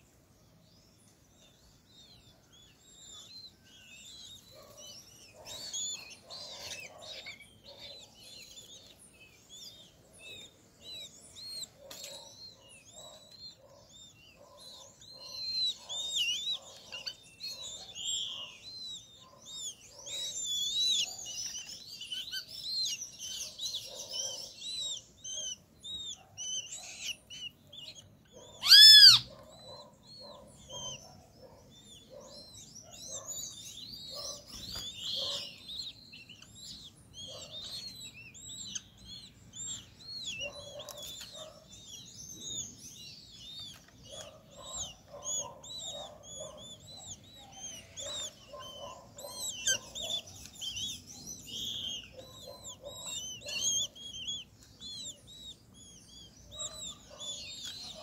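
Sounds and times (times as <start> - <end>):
birds chirping: 0.0 - 58.0
loud harsh bird call: 10.9 - 31.0.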